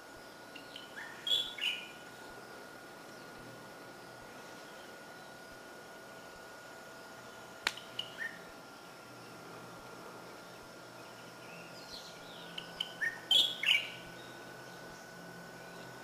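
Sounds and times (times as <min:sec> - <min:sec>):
small birds chirping: 0:00.1 - 0:03.5, 0:07.2 - 0:09.4, 0:10.3 - 0:16.0
sharp click: 0:07.6 - 0:08.1.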